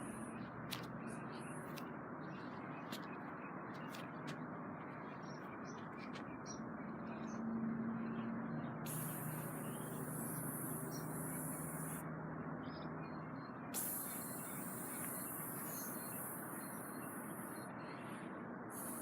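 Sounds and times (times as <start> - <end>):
faint chirps and ticks: 0.0 - 19.0
spray paint can hissing: 8.9 - 12.0, 13.8 - 17.6, 18.7 - 19.0.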